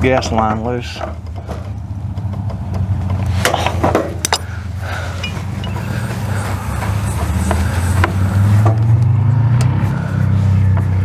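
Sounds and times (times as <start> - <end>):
low machine hum: 2.6 - 8.9.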